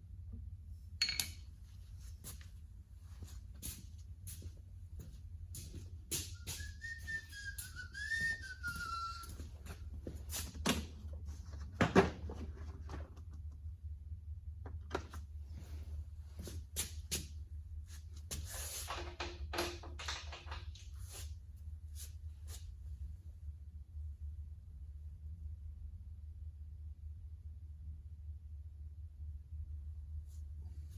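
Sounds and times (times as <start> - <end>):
steady low hum: 0.0 - 19.3, 20.7 - 30.9
clinks and knocks of work: 1.0 - 1.5, 18.8 - 20.9
person whistling a tune: 6.2 - 9.5.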